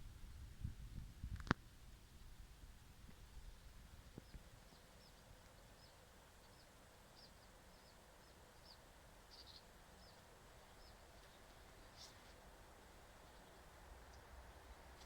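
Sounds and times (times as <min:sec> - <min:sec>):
faint bird chirping: 0:03.1 - 0:15.0.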